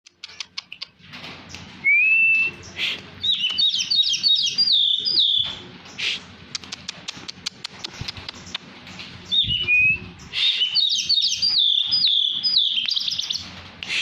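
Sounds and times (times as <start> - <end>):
songbird whistling: 1.8 - 5.5, 9.3 - 13.4.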